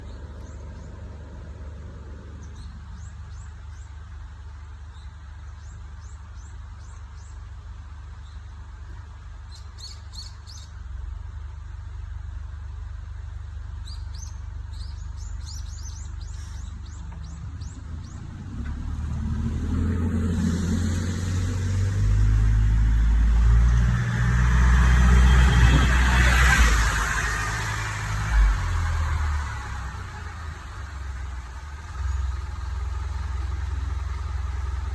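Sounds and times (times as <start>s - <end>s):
small birds chirping: 0.0s - 10.8s, 13.6s - 19.0s
bus engine idling: 0.0s - 34.9s
bus engine revving: 14.8s - 34.9s.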